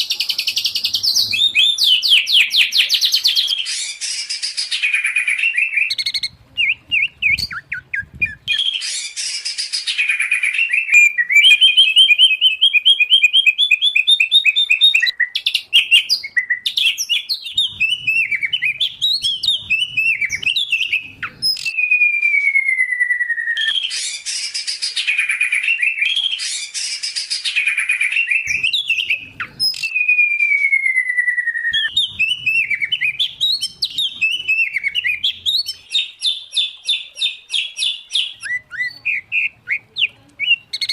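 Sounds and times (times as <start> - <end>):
harsh rasping bird calls: 0.0 - 21.8, 31.7 - 40.9
songbirds singing: 0.0 - 40.9.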